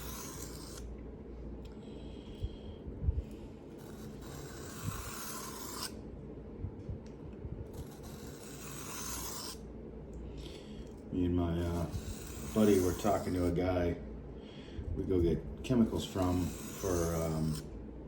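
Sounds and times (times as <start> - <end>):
knife scraping on whetstone: 0.0 - 0.8, 3.8 - 6.0, 7.8 - 9.6, 11.6 - 13.6, 15.8 - 17.7.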